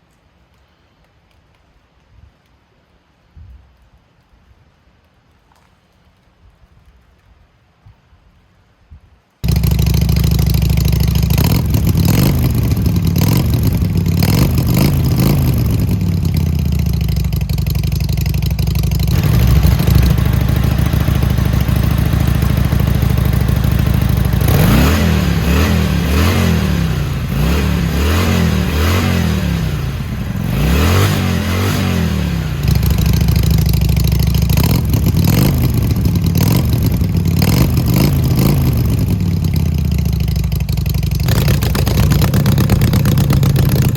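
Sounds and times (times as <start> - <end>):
motorcycle engine idling: 9.4 - 43.9
motorcycle throttle blips: 9.4 - 43.9.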